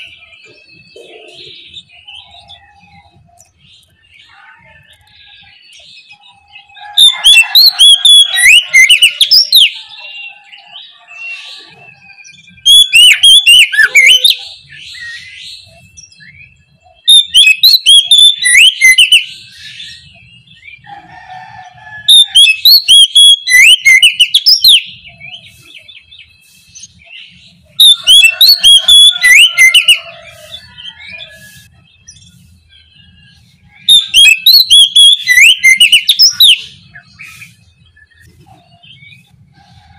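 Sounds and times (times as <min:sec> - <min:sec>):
bird singing rapid whistles: 0:05.3 - 0:20.6, 0:22.1 - 0:38.3.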